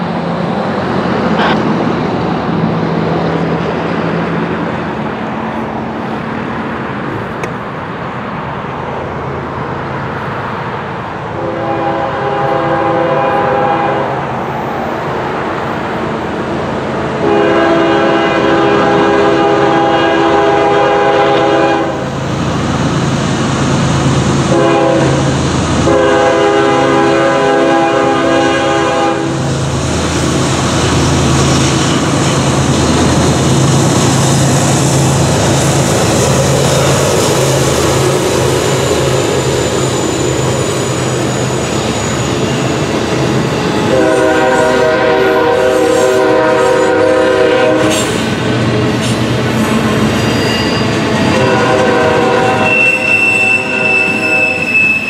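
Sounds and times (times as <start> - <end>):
locomotive engine drone: 0.0 - 55.0
train cars rolling past: 0.0 - 55.0
locomotive air horn blasts: 11.3 - 14.2, 17.2 - 22.0, 24.5 - 29.4, 43.8 - 48.1, 51.3 - 55.0.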